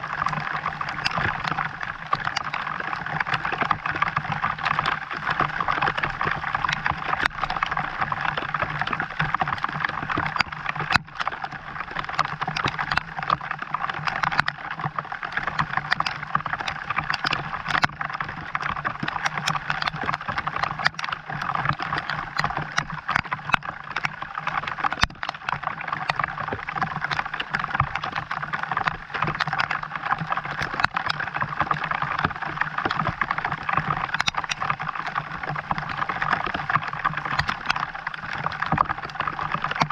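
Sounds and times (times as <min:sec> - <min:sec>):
raindrops striking close by: 0:00.0 - 0:39.9.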